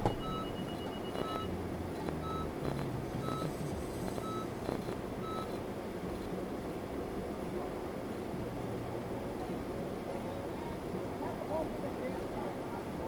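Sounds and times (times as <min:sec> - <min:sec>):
vehicle warning beeper: 0:00.0 - 0:05.6
engine idling rumble: 0:00.0 - 0:13.0.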